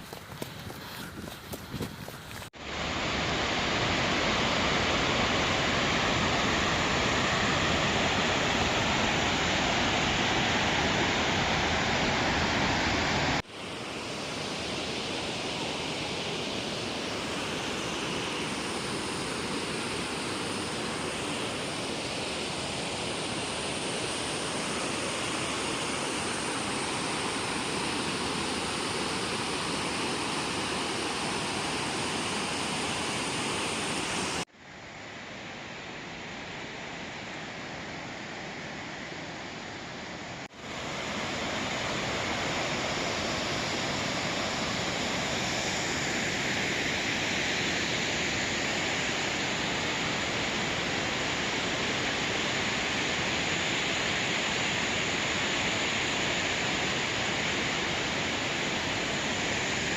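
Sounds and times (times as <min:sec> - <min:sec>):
waterfall rushing water: 0:02.6 - 0:34.5, 0:40.3 - 0:59.9.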